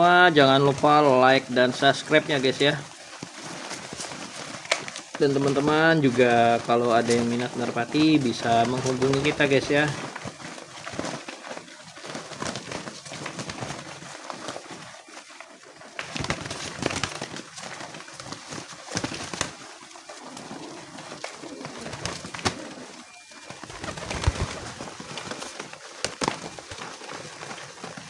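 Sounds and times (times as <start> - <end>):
pigeons cooing: 18.9 - 25.9.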